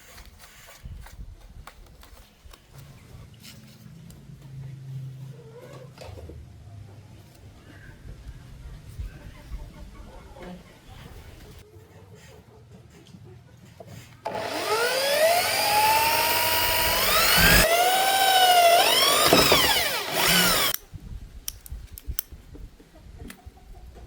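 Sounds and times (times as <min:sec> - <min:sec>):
power tool motor whine: 0:14.3 - 0:20.8.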